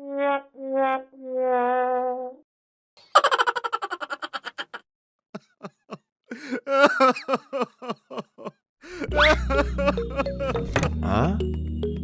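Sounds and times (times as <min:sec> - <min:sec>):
person giggling: 0:03.0 - 0:04.8, 0:05.4 - 0:11.0.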